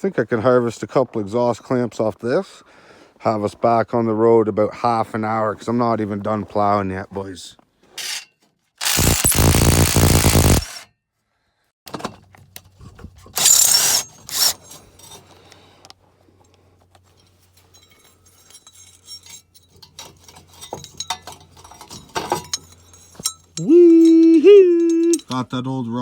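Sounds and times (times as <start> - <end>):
tool cutting metal pipe: 8.0 - 10.9, 13.4 - 14.8
faint metallic clinks: 14.6 - 15.6, 17.0 - 26.0.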